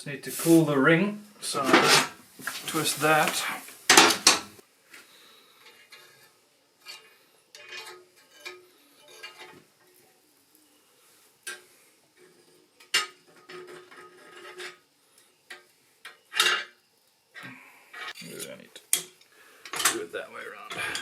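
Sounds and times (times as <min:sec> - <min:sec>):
metallic clinks and scrapes: 0:05.6 - 0:10.0, 0:11.4 - 0:14.9.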